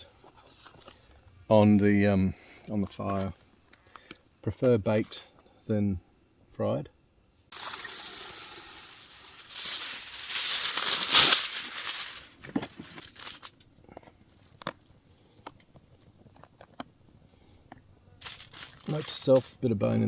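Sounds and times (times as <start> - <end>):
rustling crinkling handling noise: 7.5 - 13.7, 18.2 - 19.7.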